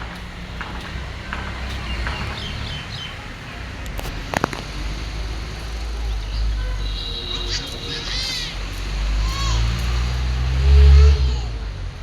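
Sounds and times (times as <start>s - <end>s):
birds chirping: 1.2s - 9.8s.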